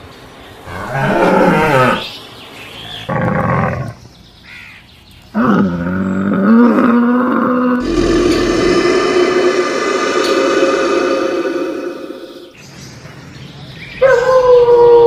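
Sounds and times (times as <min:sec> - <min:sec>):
camel groaning call: 0:00.7 - 0:02.1.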